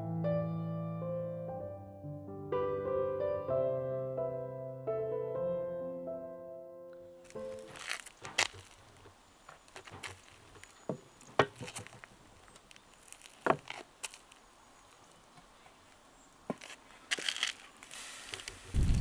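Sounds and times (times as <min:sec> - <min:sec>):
sharp knocks and taps: 0:09.8 - 0:12.2.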